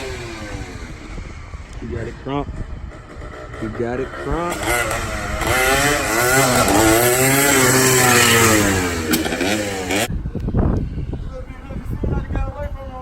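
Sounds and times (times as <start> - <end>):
small motorcycle engine revving: 0.0 - 10.2.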